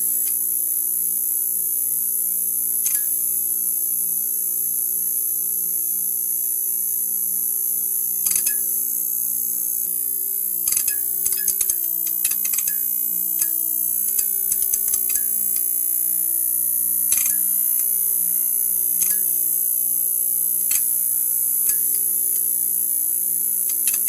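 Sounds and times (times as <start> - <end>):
neon sign buzzing: 6.4 - 24.0.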